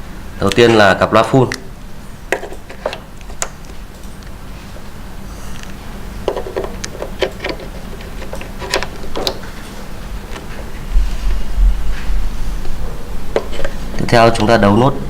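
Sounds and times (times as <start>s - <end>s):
steady low hum: 0.0s - 15.0s
connectors clicking and knocking: 5.6s - 10.7s.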